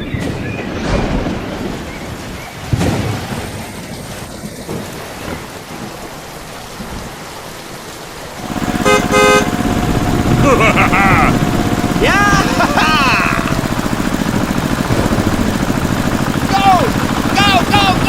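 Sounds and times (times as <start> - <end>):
thunder rumbling: 0.0 - 7.2, 8.4 - 18.0
steady rain: 0.0 - 18.0
buzzing motor: 8.4 - 18.0.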